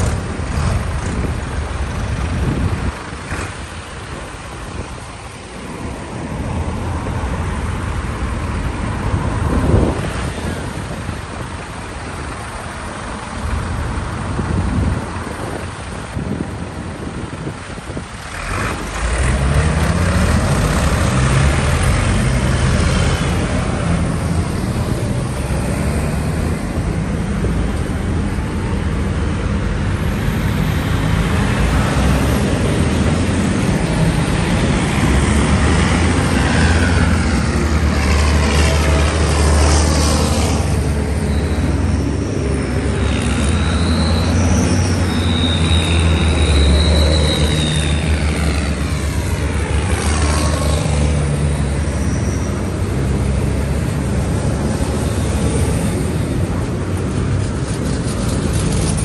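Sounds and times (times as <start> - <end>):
tractor engines passing: 0.0 - 59.0.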